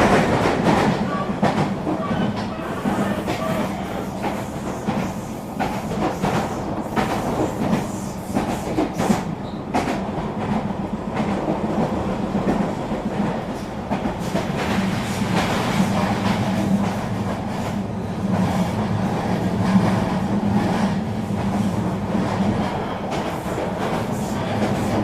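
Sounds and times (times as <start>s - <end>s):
train rumbling on track: 0.0s - 25.0s.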